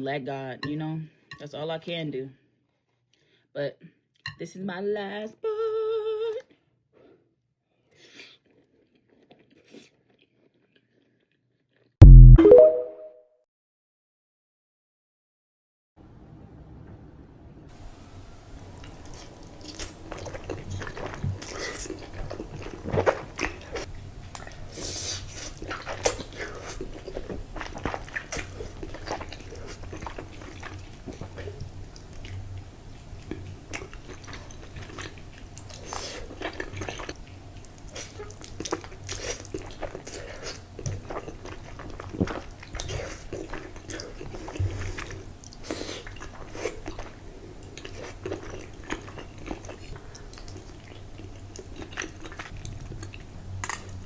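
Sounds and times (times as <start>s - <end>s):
person chewing crunchy food: 7.8s - 12.2s, 18.8s - 54.0s.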